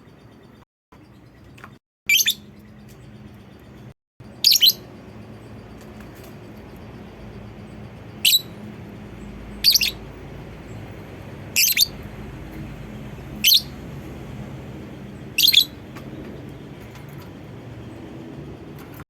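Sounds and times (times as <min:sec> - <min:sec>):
low background hum: 0:00.0 - 0:19.0
bird shrill calls: 0:02.1 - 0:02.6, 0:04.4 - 0:04.9, 0:08.2 - 0:08.6, 0:09.6 - 0:10.0, 0:11.6 - 0:12.0, 0:13.4 - 0:13.8, 0:15.4 - 0:15.8.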